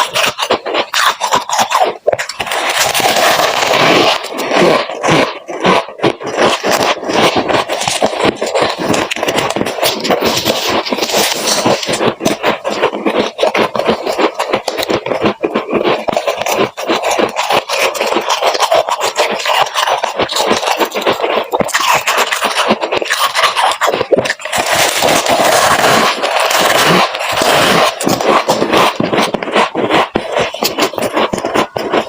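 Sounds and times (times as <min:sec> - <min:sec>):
frost crunching: 0:00.0 - 0:32.0.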